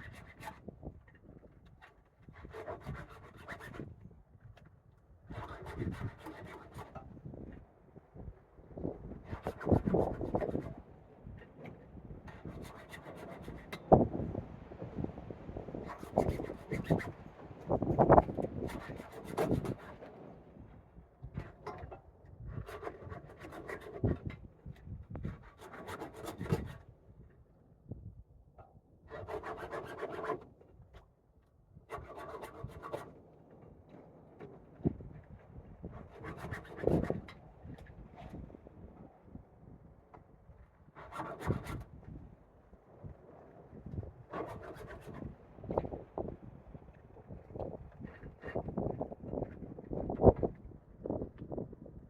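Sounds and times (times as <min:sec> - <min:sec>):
file rasping on chainsaw chain: 0:12.3 - 0:13.8, 0:29.1 - 0:30.4.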